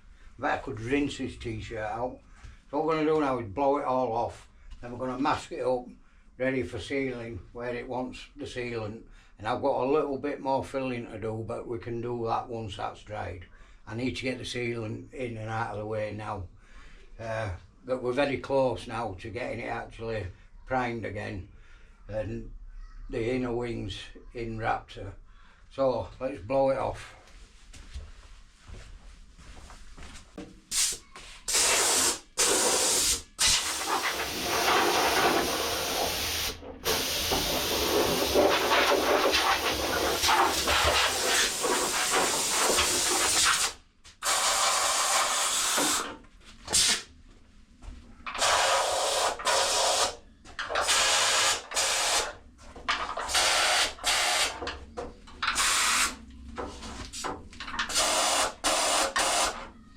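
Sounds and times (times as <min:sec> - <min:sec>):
air blow gun hissing: 0:30.7 - 0:47.0, 0:48.4 - 0:50.2, 0:50.8 - 0:52.3, 0:55.5 - 0:56.2.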